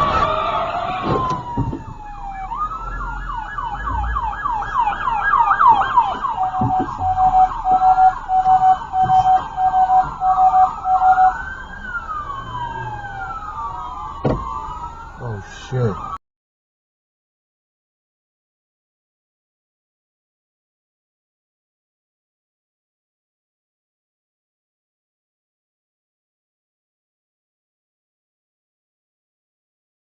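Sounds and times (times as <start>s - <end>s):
emergency vehicle siren: 0.0s - 16.2s.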